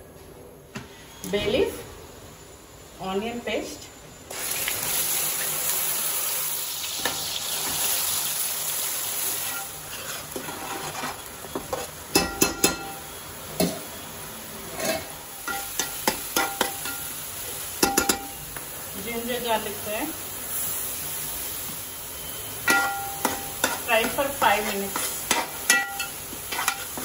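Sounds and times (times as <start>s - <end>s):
paste sizzling in hot oil: 4.3s - 27.0s
steel spoon scraping a pot: 9.4s - 12.0s, 14.7s - 15.6s, 22.7s - 27.0s
spoon clinking on pot: 12.1s - 13.0s, 14.8s - 17.1s, 17.8s - 18.4s, 22.7s - 24.2s, 25.0s - 26.9s.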